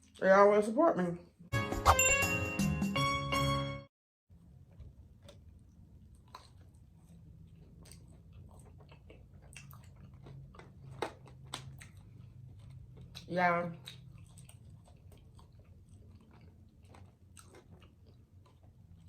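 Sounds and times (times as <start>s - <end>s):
faint chewing food: 4.3s - 19.0s.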